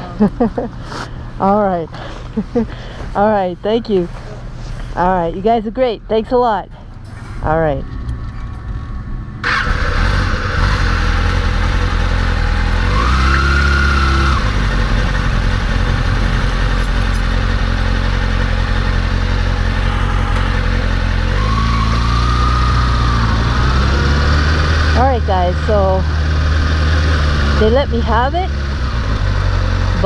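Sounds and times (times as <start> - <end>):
motorcycle engine revving: 9.4 - 30.0.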